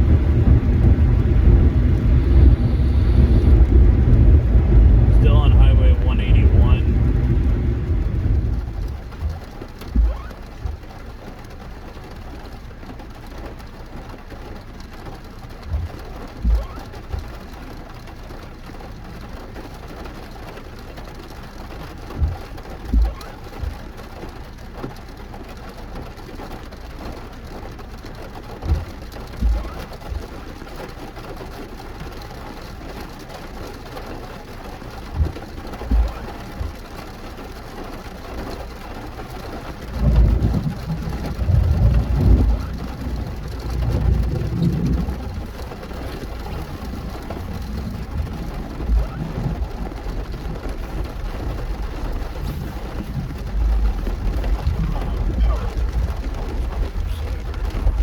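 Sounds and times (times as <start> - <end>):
short low thumps: 0.0 - 10.8
road noise: 0.0 - 23.2, 26.4 - 58.0
rain on a car: 0.0 - 58.0.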